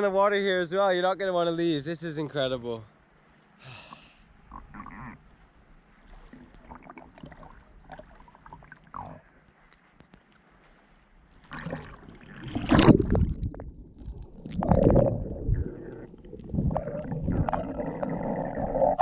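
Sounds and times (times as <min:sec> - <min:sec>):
water sloshing and gurgling: 0:04.3 - 0:19.0.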